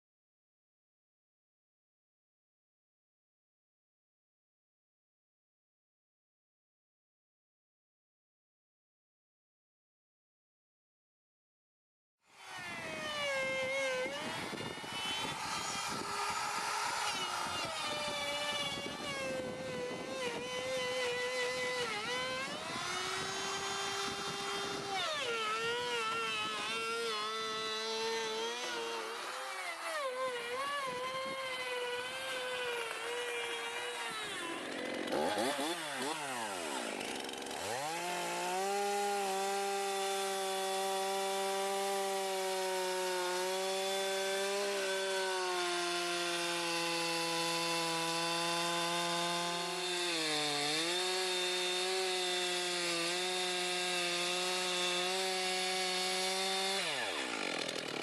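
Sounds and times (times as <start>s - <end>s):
motor whining: 12.5s - 35.4s.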